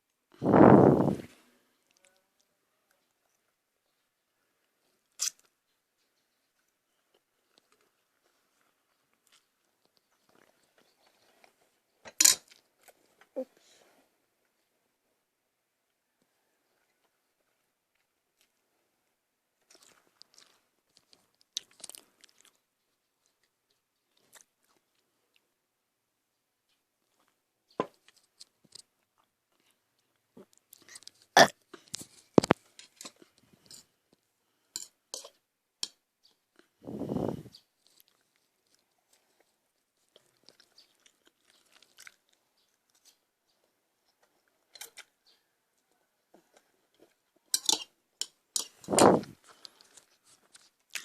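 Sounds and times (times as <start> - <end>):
person chewing crunchy food: 19.6 - 22.6, 36.6 - 45.4, 48.6 - 51.0.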